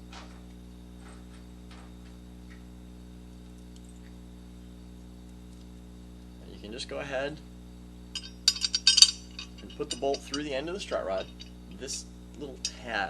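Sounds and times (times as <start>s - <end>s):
electrical hum: 0.0s - 13.0s
light clicks of metal parts: 8.2s - 13.0s.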